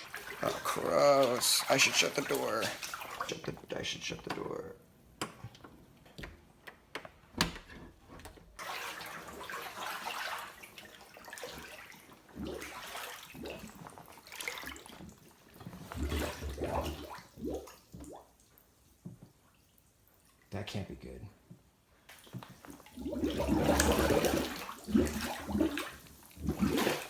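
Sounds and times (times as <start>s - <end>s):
wading through sloshing water: 0.0s - 4.6s, 8.6s - 20.5s, 22.1s - 27.0s.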